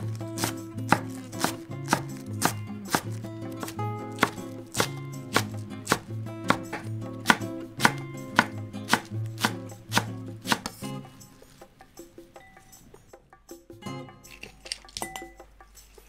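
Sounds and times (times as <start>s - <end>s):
knife chopping on cutting board: 0.0s - 11.0s
soft background music: 0.0s - 16.0s.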